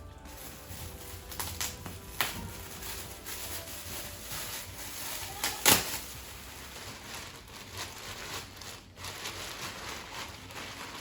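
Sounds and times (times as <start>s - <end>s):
gift wrapping rustling: 0.0s - 11.0s.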